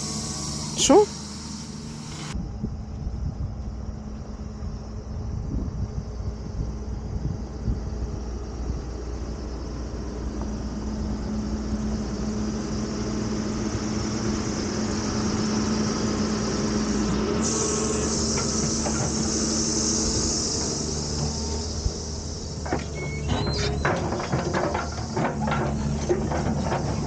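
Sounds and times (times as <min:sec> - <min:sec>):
car engine running at low speed: 0:00.0 - 0:27.0
high hiss: 0:17.4 - 0:22.4.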